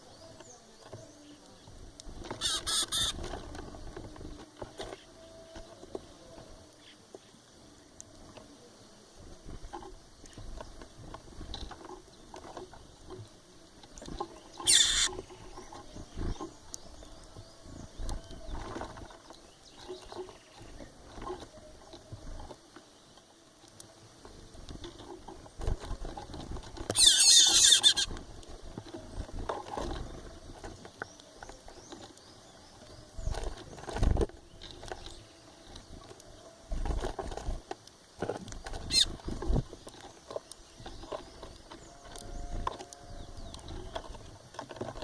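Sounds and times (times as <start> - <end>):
faint bird chirps: 0.0 - 9.0, 12.2 - 23.4, 26.9 - 28.2, 38.7 - 44.3
bird squawking: 2.3 - 3.3, 14.6 - 15.3, 27.0 - 28.1, 38.9 - 39.2
bird screeching: 2.4 - 3.2, 14.6 - 15.2, 27.0 - 28.1, 38.9 - 39.1.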